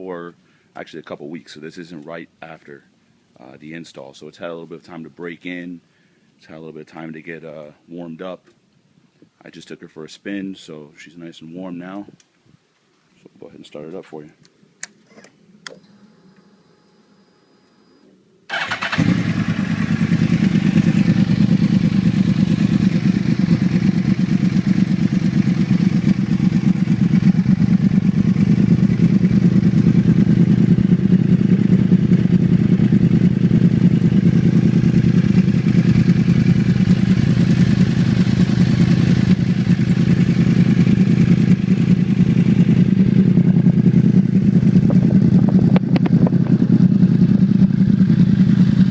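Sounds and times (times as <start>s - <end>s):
motorcycle engine starting and idling: 18.5s - 48.9s.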